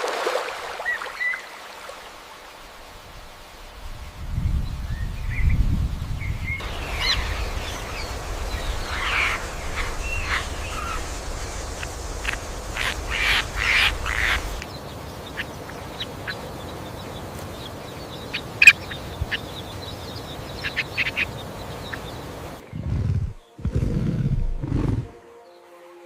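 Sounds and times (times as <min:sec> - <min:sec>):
harsh quack-like bird calls: 0:12.8 - 0:14.6.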